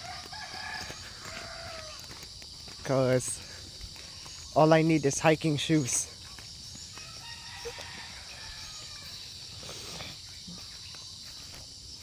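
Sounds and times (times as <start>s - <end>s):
insect chorus buzzing: 0.0s - 12.0s.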